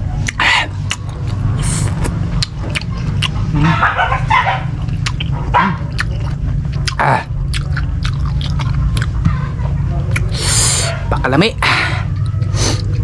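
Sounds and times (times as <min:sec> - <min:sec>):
steady low hum: 0:00.0 - 0:13.0
wet mouth clicks and smacks: 0:00.2 - 0:03.4.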